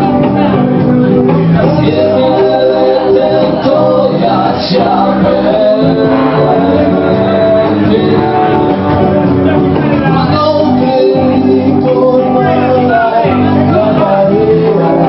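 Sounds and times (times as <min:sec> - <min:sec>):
live rock band playing: 0:00.0 - 0:15.0
person singing: 0:00.0 - 0:15.0.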